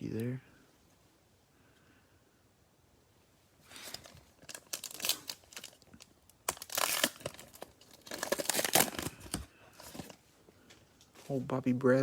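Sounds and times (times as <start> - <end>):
cellophane wrapper tearing and crinkling: 3.7 - 10.1.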